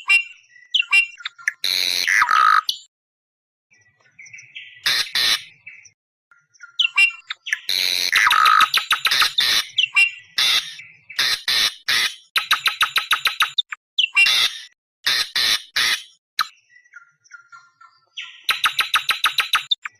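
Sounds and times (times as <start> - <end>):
harsh screeching bird calls: 0.0 - 2.9, 4.5 - 5.9, 6.6 - 16.7, 18.2 - 19.9.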